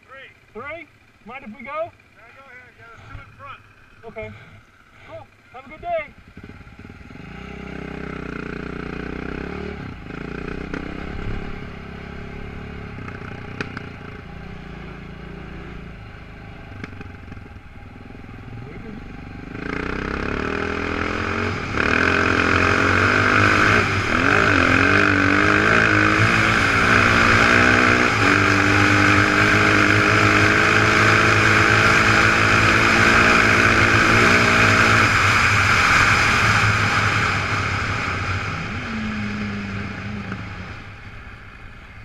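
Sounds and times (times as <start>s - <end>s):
motorcycle engine shifting gears: 2.9s - 41.2s.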